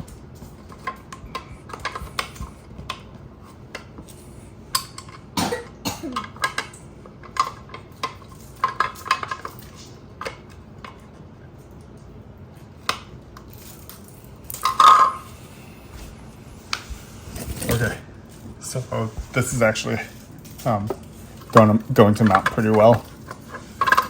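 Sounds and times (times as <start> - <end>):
hard parts clicking and knocking: 20.4 - 24.0.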